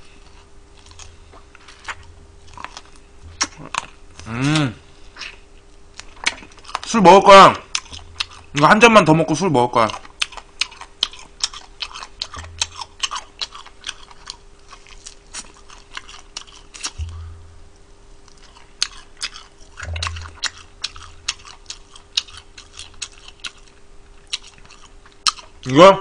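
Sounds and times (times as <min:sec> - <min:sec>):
crunchy chewing: 0:00.0 - 0:25.7
faint steady hum: 0:00.0 - 0:26.0.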